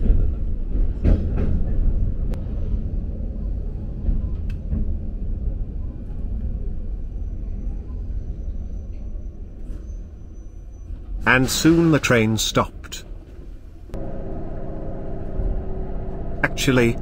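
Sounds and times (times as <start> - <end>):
electric train rumbling: 0.0 - 17.0
faint high whine: 14.0 - 17.0.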